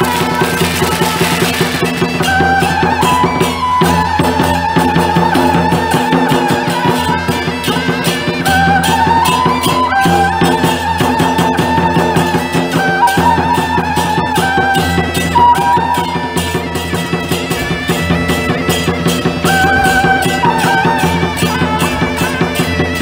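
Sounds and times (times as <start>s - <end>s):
fast percussion: 0.0s - 23.0s
reedy wind instrument melody: 0.0s - 23.0s.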